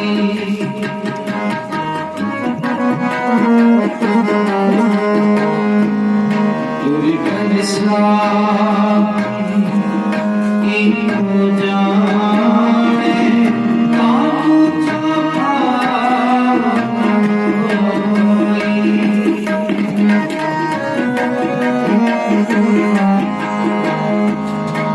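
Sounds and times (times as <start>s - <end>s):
person singing: 0.0s - 1.0s, 6.8s - 24.9s
harmonium chords: 0.0s - 24.9s
tabla strokes: 0.0s - 24.9s.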